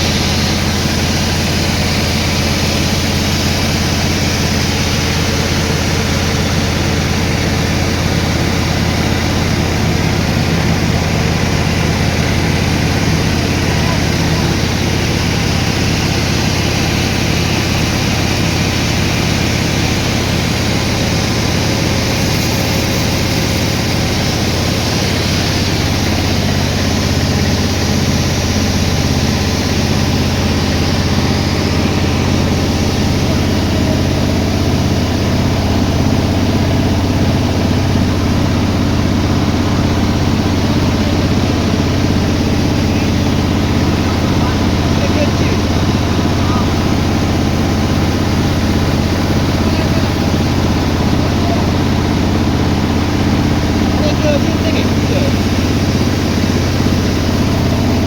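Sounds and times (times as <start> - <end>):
engine droning steadily: 0.0 - 58.0.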